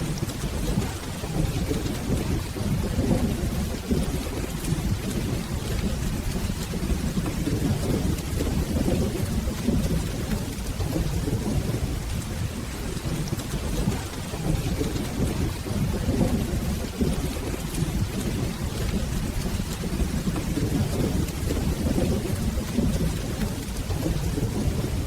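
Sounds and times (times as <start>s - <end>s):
rolling thunder: 0.0s - 25.0s
steady rain: 0.0s - 25.0s.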